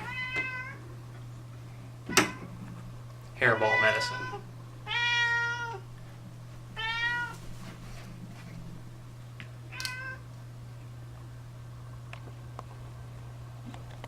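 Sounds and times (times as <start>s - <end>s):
cat meowing: 0.0s - 0.8s, 3.6s - 5.9s, 6.8s - 7.4s, 9.7s - 10.2s.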